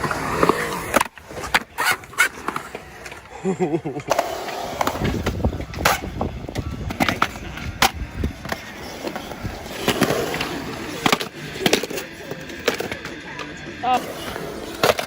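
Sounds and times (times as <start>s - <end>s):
skateboard wheels grinding: 0.0s - 15.0s
skateboard clacking on ground: 3.9s - 15.0s.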